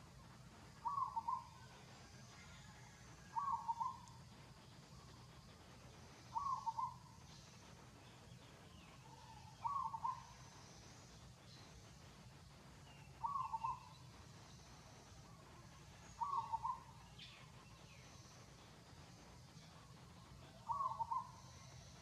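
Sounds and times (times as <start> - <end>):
faint high chirps: 0.0 - 22.0
bird calling: 0.8 - 1.7, 2.7 - 4.2, 6.2 - 7.5, 8.7 - 10.8, 12.8 - 14.7, 16.0 - 18.3, 20.5 - 21.9.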